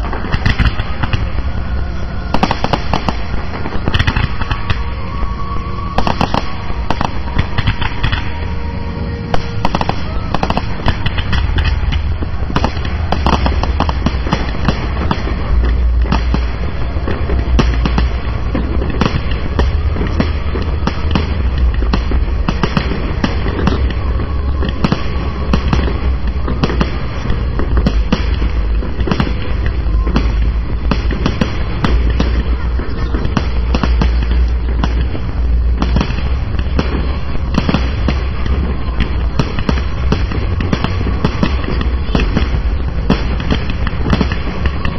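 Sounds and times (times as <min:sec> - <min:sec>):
deep booming: 0:00.0 - 0:44.9
fireworks cracks and bangs: 0:00.0 - 0:44.9.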